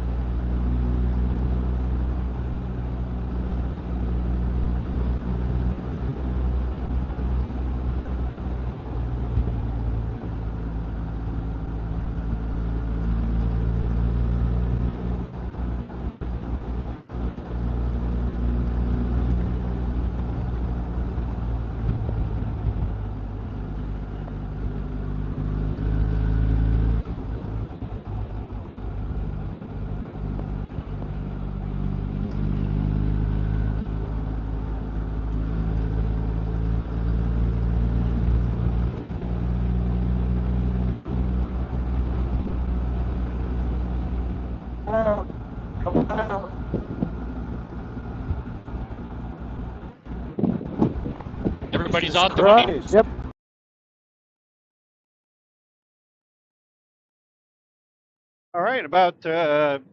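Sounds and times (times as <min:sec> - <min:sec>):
road noise: 0:00.0 - 0:53.3, 0:58.6 - 0:59.9
wind noise: 0:21.5 - 0:23.6, 0:42.0 - 0:53.3.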